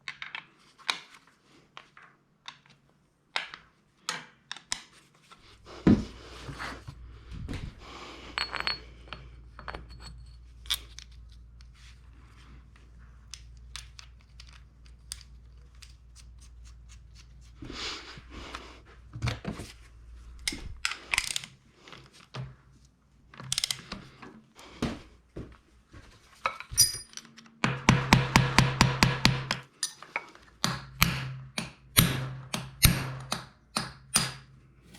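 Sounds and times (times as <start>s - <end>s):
low steady hum: 5.4s - 20.9s
tools and metal parts clinking: 8.4s - 11.7s, 26.5s - 27.5s, 29.7s - 30.4s.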